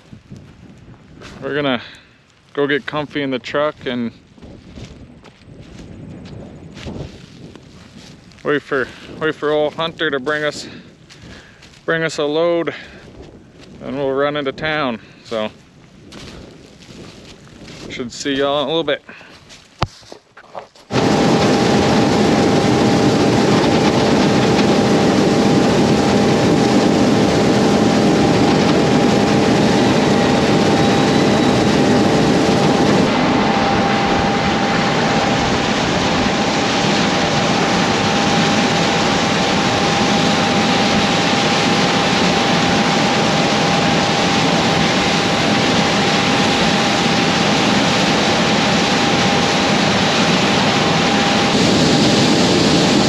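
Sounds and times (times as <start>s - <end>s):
heavy diesel engine running: 20.9s - 53.0s
thin steady whine: 20.9s - 53.0s.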